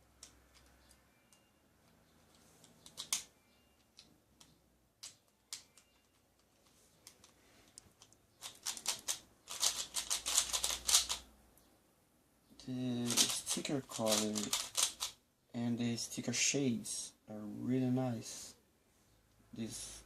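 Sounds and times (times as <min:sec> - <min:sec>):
puzzle cube clicking as turned: 0:02.3 - 0:11.2, 0:13.1 - 0:15.2.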